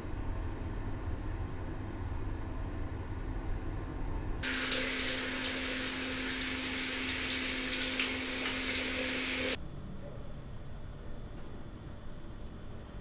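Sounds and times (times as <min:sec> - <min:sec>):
shower water splashing: 0:04.4 - 0:09.6
steady hum: 0:04.4 - 0:09.7.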